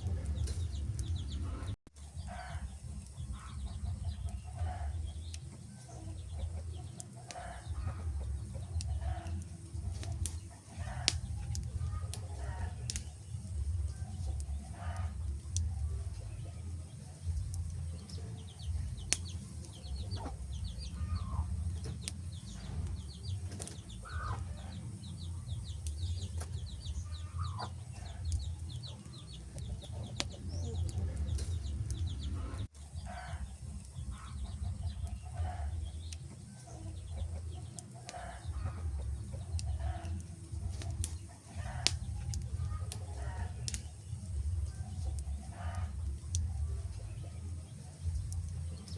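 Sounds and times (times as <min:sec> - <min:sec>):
wood fire crackling and popping: 0:00.0 - 0:01.5, 0:02.5 - 0:32.7, 0:33.4 - 0:48.9
low rumble: 0:00.0 - 0:05.4, 0:07.7 - 0:32.7
chickens clucking: 0:00.0 - 0:48.9
small bird chirping: 0:03.0 - 0:48.9.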